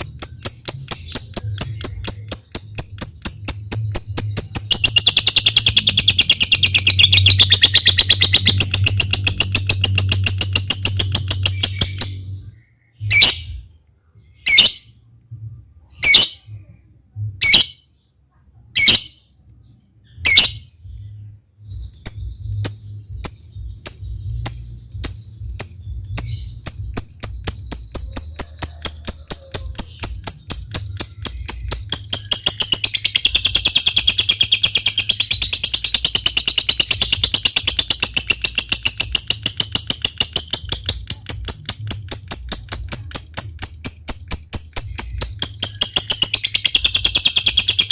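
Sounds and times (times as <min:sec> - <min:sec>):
quick ticking bird notes: 0:00.0 - 0:12.2, 0:21.9 - 0:47.9
lovebird chattering trill: 0:00.0 - 0:13.6, 0:21.7 - 0:47.9
steady low hum: 0:20.6 - 0:46.4.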